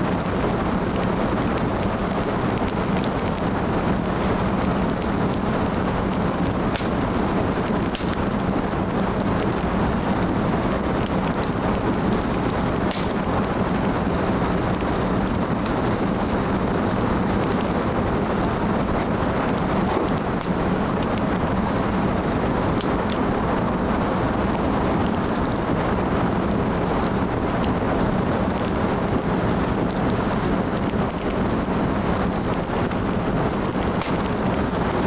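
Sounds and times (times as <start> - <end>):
fire crackles and pops: 0.0 - 35.0
firewood burning: 0.0 - 35.0.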